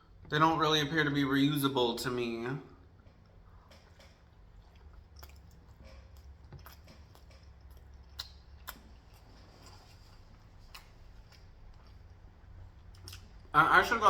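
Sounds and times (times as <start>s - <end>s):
low steady hum: 0.0s - 14.0s
person chewing food: 2.8s - 13.5s.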